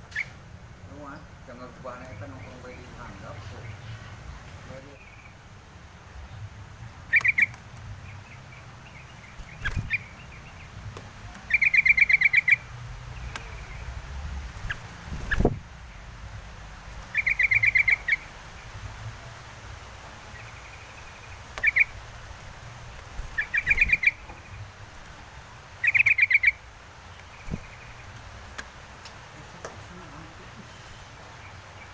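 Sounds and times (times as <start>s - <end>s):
bird chattering calls: 7.1s - 7.6s, 8.2s - 10.7s, 11.4s - 13.9s, 14.6s - 15.6s, 17.0s - 18.3s, 20.3s - 22.0s, 23.1s - 24.6s, 25.8s - 26.6s.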